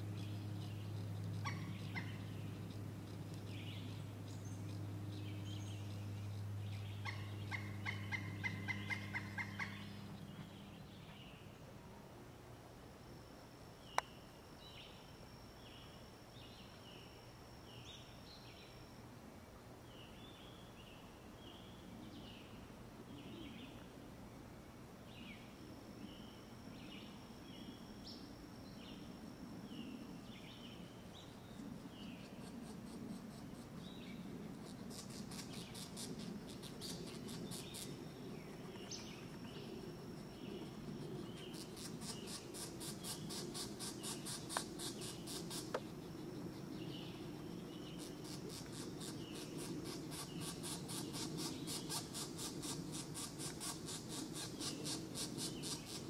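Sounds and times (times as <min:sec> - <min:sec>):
pulsing insect trill: 0:12.7 - 0:19.1, 0:25.1 - 0:56.0.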